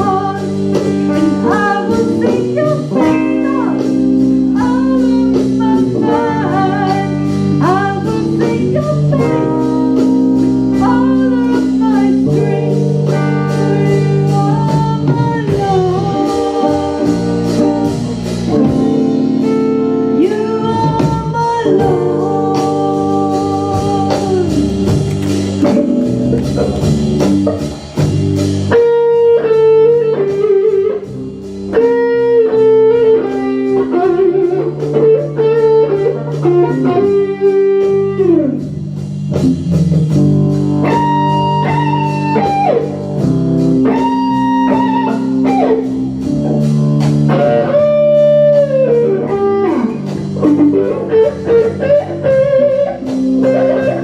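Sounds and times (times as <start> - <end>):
bass: 0.0 - 54.0
electric guitar lead melody: 0.0 - 54.0
steady drum beat: 0.0 - 54.0.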